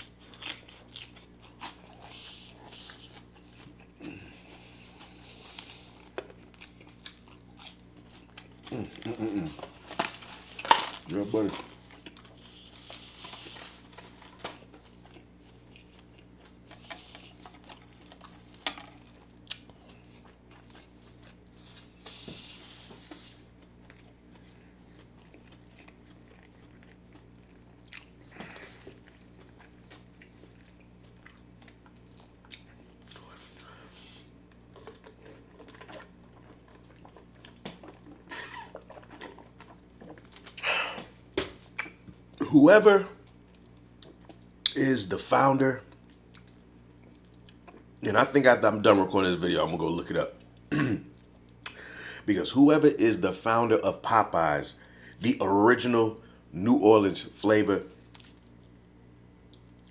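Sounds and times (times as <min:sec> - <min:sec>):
wet chewing: 0:00.0 - 0:22.4, 0:23.0 - 0:40.7
steady low hum: 0:00.0 - 0:59.9.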